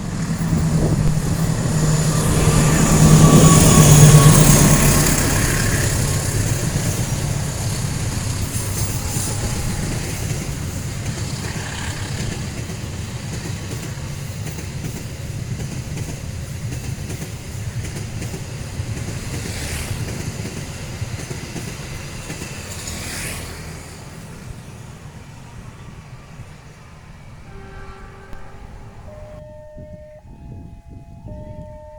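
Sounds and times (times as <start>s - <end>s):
train wheels clattering on rails: 0.0s - 27.1s
high-pitched squeals: 0.5s - 12.5s, 27.2s - 29.6s.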